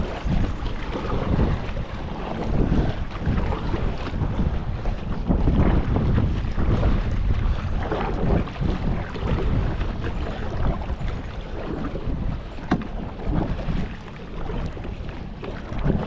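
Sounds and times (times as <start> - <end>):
choppy lake water: 0.0 - 16.0
wind buffeting microphone: 0.0 - 16.0.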